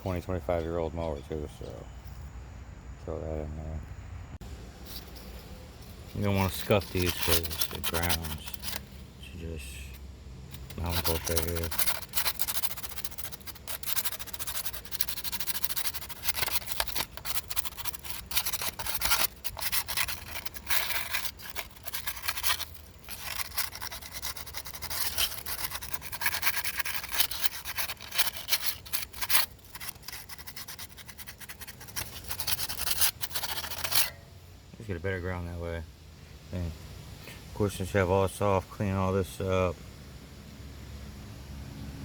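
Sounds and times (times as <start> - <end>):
scraping on metal: 4.8 - 34.4.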